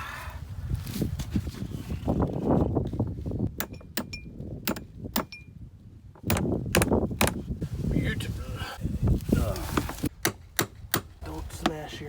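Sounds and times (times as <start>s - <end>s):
scuffling handling noise: 9.0s - 10.1s.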